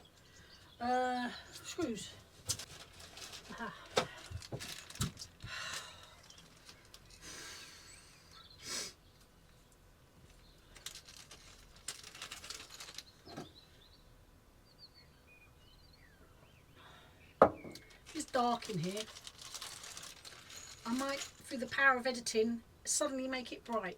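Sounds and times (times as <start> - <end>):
rustling and handling objects: 1.5 - 8.3, 9.2 - 13.7, 17.5 - 22.4
faint bird chirps: 7.6 - 9.8.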